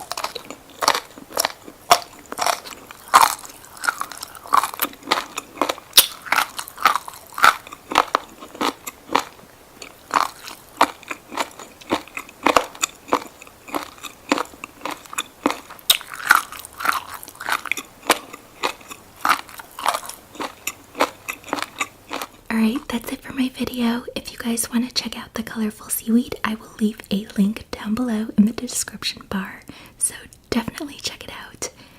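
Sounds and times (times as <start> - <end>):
crunchy chewing: 0.0 - 23.1.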